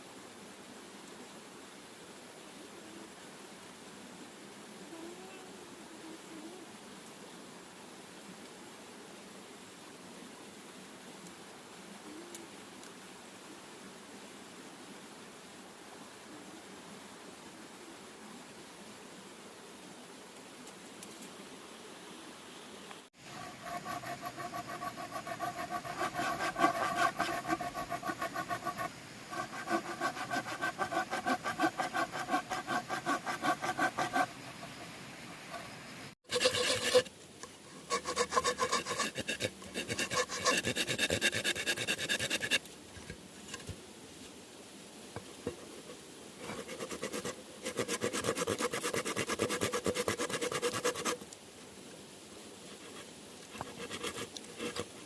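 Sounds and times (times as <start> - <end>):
hand saw cutting bamboo: 23.3 - 34.8, 36.3 - 37.1, 37.7 - 42.6, 46.4 - 51.2, 53.6 - 55.0.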